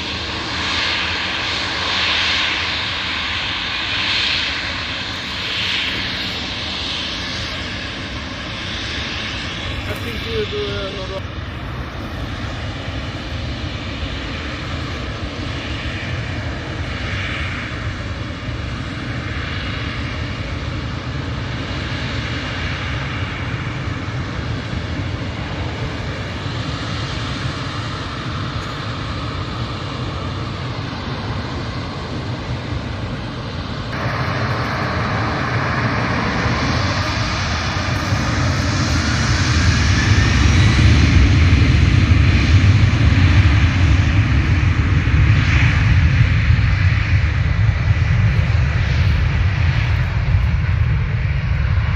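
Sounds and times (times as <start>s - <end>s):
airliner engines running: 0.0s - 51.9s
rising engine whine: 23.4s - 51.9s.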